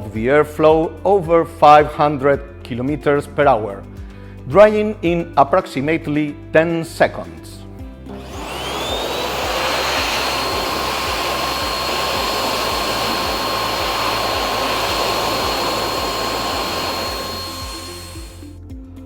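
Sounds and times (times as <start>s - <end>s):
hand dryer air rush and whine: 8.1s - 18.5s.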